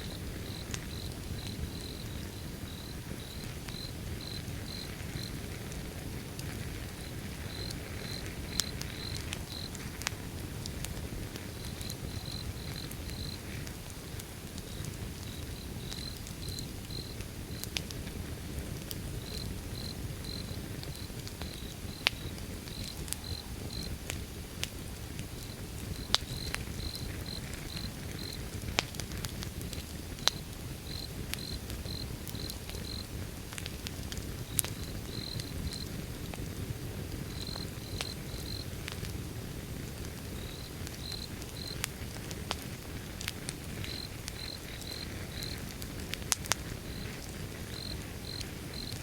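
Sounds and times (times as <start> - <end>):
cricket chirping: 0.0 - 5.4, 7.0 - 9.7, 14.7 - 17.2, 19.2 - 23.9, 30.9 - 33.1, 35.1 - 35.9, 40.4 - 41.8, 43.9 - 45.6, 46.9 - 49.0
wood fire burning: 0.0 - 49.0.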